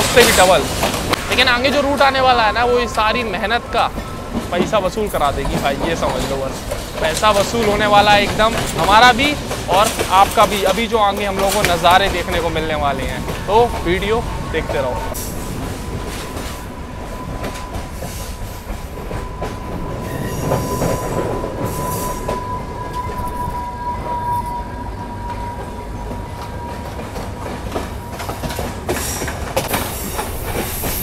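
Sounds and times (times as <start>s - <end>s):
train wheels rumbling and rattling: 0.0s - 31.0s
high wheel squeal: 10.6s - 30.9s.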